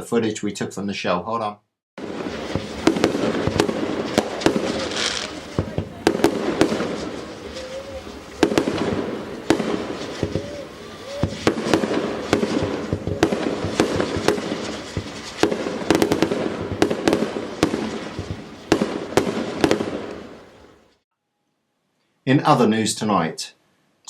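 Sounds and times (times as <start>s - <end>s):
fireworks bangs and cracks: 2.0s - 21.0s
fireworks crackling: 2.0s - 21.0s.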